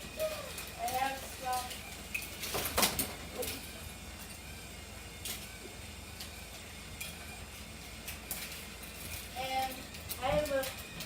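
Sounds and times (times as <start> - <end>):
toy cars and track clicking: 0.0 - 11.0.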